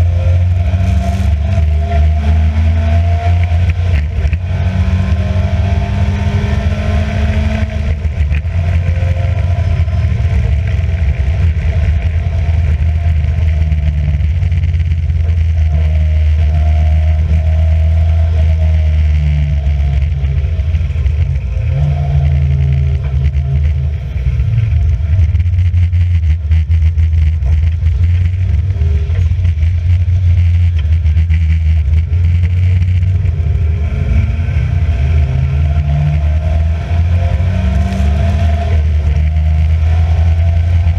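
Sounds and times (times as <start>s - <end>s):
racing car engine revving: 0.0s - 40.9s.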